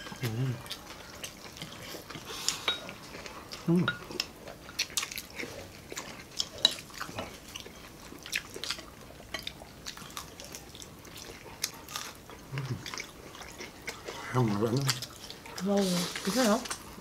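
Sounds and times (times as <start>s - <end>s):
chewing crispy food: 0.0s - 17.0s.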